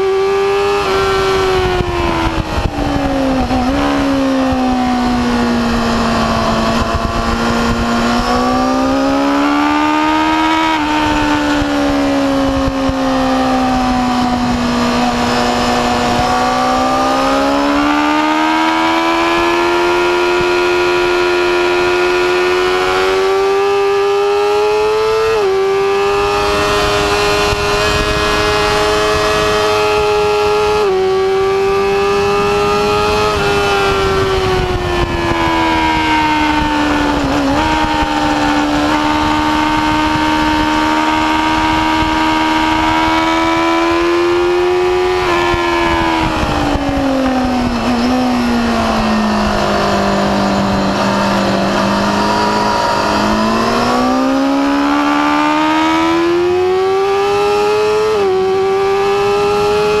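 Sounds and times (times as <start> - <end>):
wind rush: 0.0 - 24.1, 24.7 - 60.0
motorcycle engine revving high: 0.0 - 60.0.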